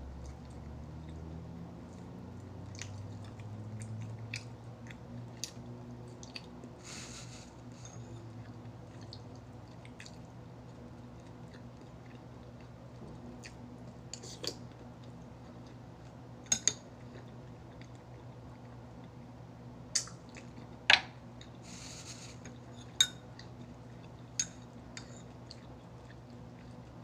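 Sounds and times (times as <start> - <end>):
person chewing: 1.9 - 6.6, 7.8 - 16.2.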